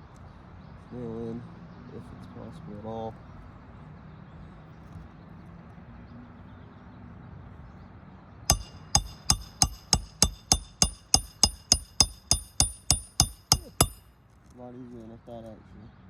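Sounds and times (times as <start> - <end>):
hammer striking nail: 8.5 - 14.1.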